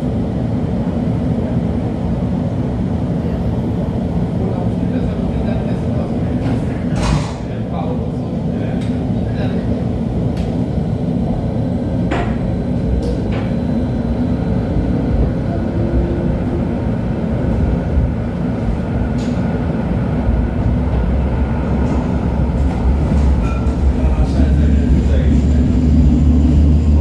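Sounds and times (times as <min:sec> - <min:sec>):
light-rail car rumbling on track: 0:00.0 - 0:27.0
low hum: 0:20.3 - 0:27.0.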